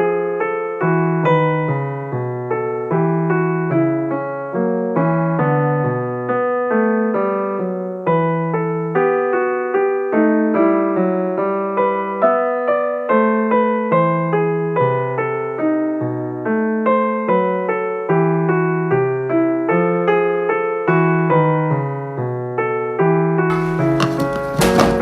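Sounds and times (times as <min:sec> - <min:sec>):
gentle piano music: 0:00.0 - 0:22.3
short clatter: 0:23.5 - 0:25.0.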